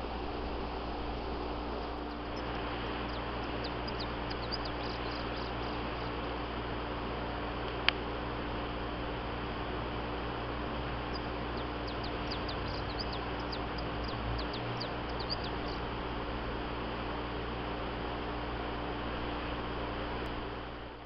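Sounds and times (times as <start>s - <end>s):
steady hiss and low hum: 0.0s - 21.0s
small birds chirping: 1.8s - 6.3s, 10.9s - 15.9s.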